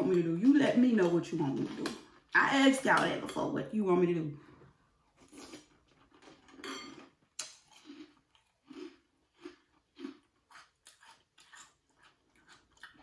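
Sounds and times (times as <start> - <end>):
person chewing crunchy cereal: 5.0 - 13.0.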